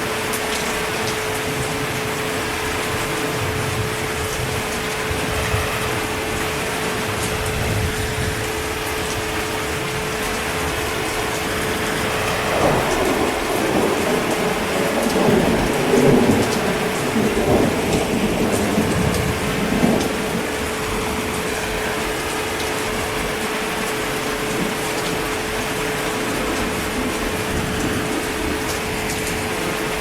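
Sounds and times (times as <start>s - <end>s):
heavy rain: 0.0s - 30.0s
rolling thunder rumble: 1.5s - 23.5s, 24.5s - 30.0s.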